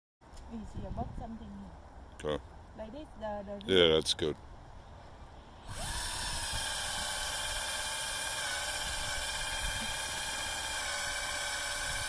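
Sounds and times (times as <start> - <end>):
power drill whining: 5.6 - 12.0.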